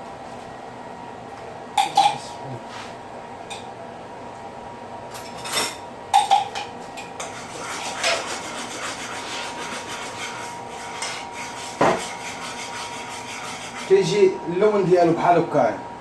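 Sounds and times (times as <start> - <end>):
utensil scraping a pan: 7.2 - 14.2.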